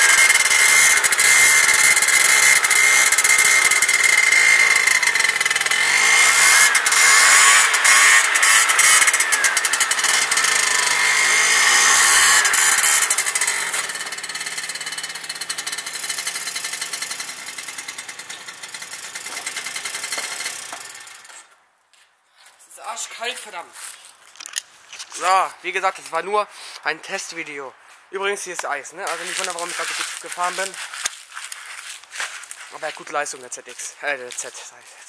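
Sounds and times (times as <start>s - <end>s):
high engine whine: 0.0s - 21.4s
scooter engine revving: 0.0s - 21.4s.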